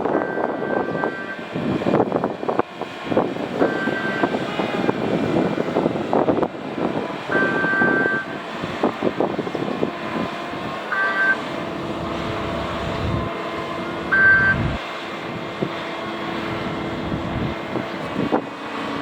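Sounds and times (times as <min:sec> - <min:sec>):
truck humming and rumbling: 0:00.0 - 0:19.0
warning beeper beeps: 0:00.1 - 0:01.4, 0:10.9 - 0:11.4, 0:14.1 - 0:14.8.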